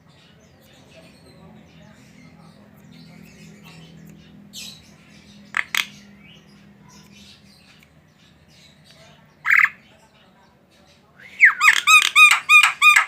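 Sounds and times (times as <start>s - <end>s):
bird chirping: 0.0s - 13.0s
bird harsh squawks: 5.5s - 6.1s, 9.4s - 9.8s, 11.4s - 13.0s.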